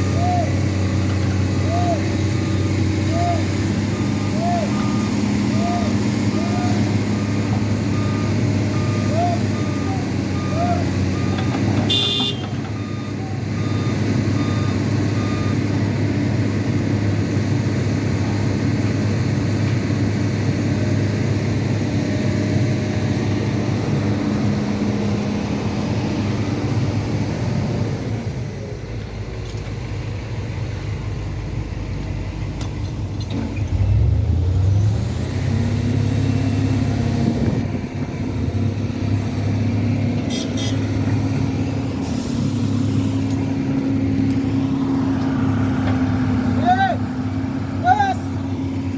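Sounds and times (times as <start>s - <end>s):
reversing alarm beeping: 0.0s - 16.0s
truck engine running: 0.0s - 48.9s.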